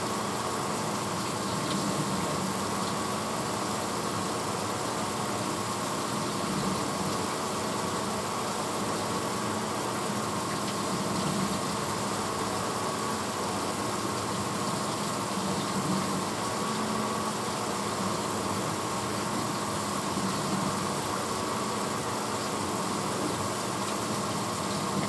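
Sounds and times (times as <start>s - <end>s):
dishwasher motor hum: 0.0s - 25.0s
dishwasher water rushing: 10.0s - 25.0s.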